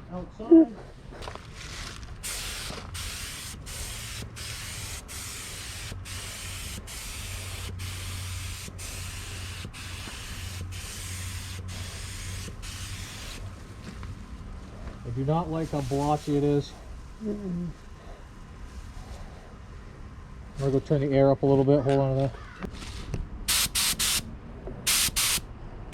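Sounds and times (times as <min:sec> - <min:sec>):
spray gun trigger releases: 0:02.2 - 0:13.4, 0:23.5 - 0:24.2, 0:24.9 - 0:25.4
paint spray gun hissing: 0:02.2 - 0:13.5, 0:23.5 - 0:24.3, 0:24.9 - 0:25.4.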